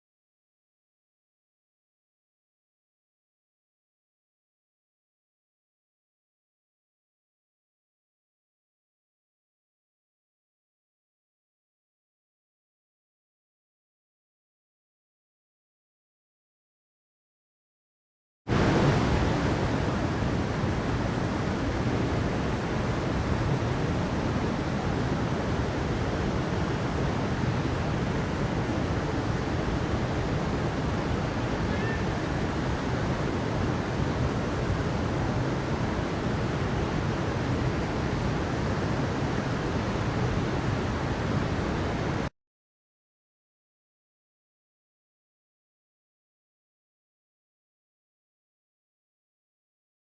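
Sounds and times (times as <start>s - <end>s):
rushing water: 18.5s - 42.3s.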